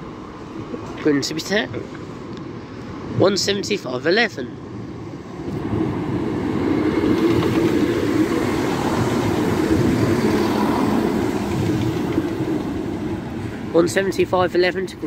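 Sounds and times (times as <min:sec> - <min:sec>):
diesel train engines: 0:00.0 - 0:15.0
train wheels on rails: 0:05.4 - 0:15.0.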